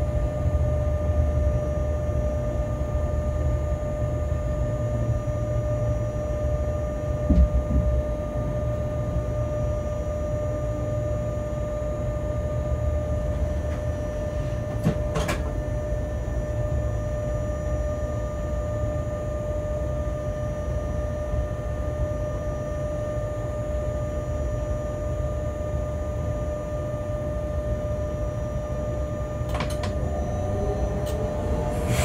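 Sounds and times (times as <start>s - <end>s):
constant whine: 0.0s - 32.0s
locomotive cab rumble: 29.5s - 32.0s.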